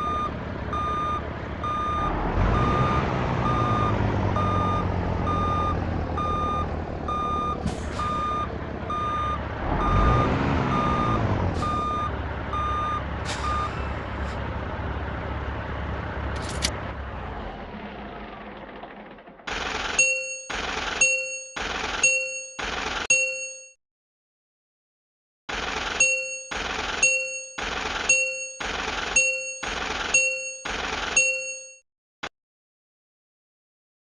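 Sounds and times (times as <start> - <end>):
truck reversing alarm beeping: 0.0 - 15.0, 19.5 - 23.8, 25.5 - 31.8
diesel engine running: 0.0 - 23.1, 25.5 - 31.5.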